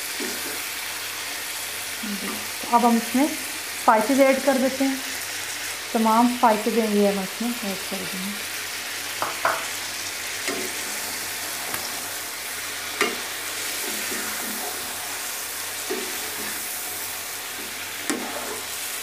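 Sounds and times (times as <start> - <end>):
chicken sizzling in hot oil: 0.0 - 19.0
spatula knocking and scraping pan: 9.2 - 9.8, 12.9 - 14.9, 15.8 - 16.6, 17.5 - 18.8.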